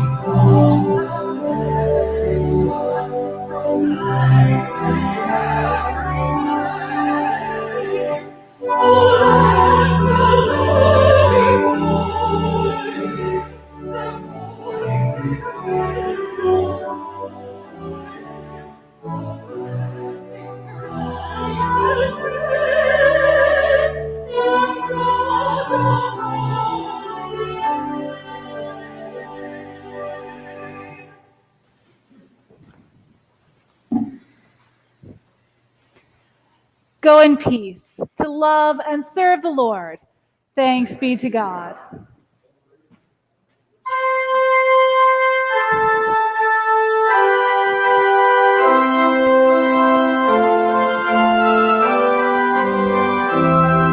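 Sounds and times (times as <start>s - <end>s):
organ chords: 0.0s - 31.3s, 43.9s - 53.9s
person singing a hymn: 0.0s - 31.3s, 43.9s - 53.9s.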